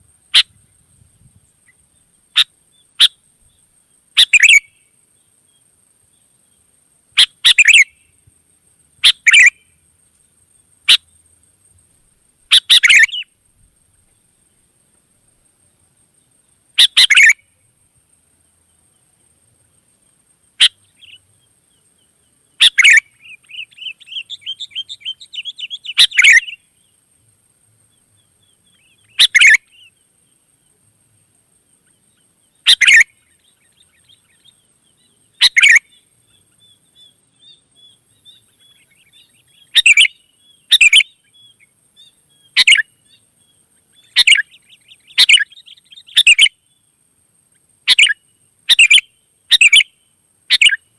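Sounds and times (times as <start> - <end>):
soft rapid bird chattering: 4.2 - 4.7, 7.2 - 7.9, 9.0 - 9.6, 12.5 - 13.2, 16.8 - 17.4, 20.6 - 21.3, 22.0 - 26.6, 28.4 - 29.9, 31.8 - 43.2, 43.8 - 46.5, 47.9 - 49.9, 50.5 - 50.8
bulbuls calling: 16.8 - 17.4, 22.0 - 26.6, 28.4 - 29.9, 31.8 - 41.6, 43.9 - 46.5.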